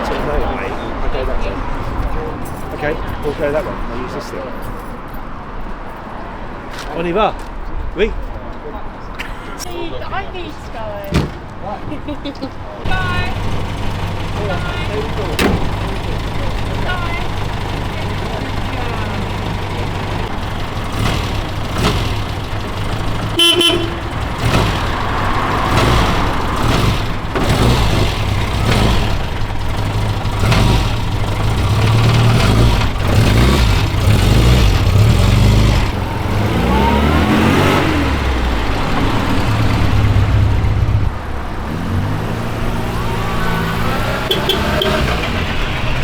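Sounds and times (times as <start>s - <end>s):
car engine accelerating: 12.8s - 46.0s
car horn toot: 12.9s - 20.0s, 22.8s - 27.8s, 43.4s - 45.6s.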